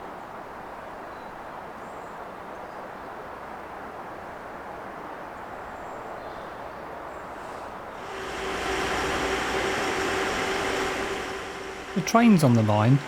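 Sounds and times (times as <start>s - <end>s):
train running with hum and whine: 7.8s - 13.0s.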